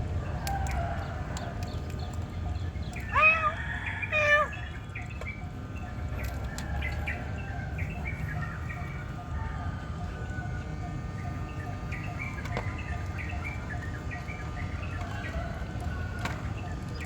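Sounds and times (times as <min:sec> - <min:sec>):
cat meowing: 0:03.1 - 0:04.6.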